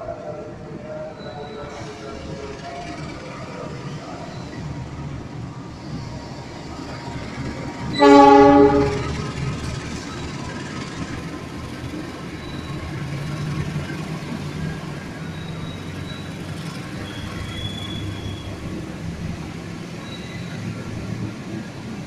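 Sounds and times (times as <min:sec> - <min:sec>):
train wagons rumbling past: 0:00.0 - 0:22.0
wheels squealing: 0:05.8 - 0:21.2.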